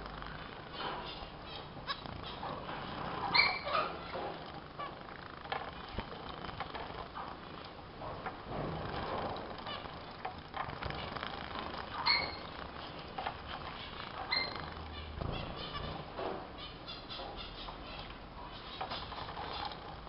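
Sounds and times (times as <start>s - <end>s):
wings fluttering: 0.0s - 7.6s, 8.7s - 16.1s, 18.7s - 20.0s
finch chirp: 0.2s - 5.2s, 9.6s - 10.2s, 11.8s - 19.9s.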